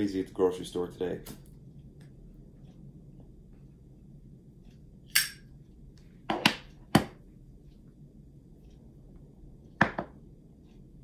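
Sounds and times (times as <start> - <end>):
hard objects knocking and clicking: 9.8 - 10.2.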